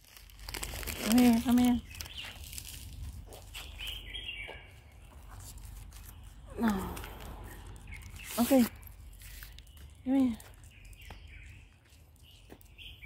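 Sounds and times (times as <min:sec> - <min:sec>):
bird chirping: 0:01.6 - 0:13.0
low outdoor rumble: 0:05.0 - 0:09.3.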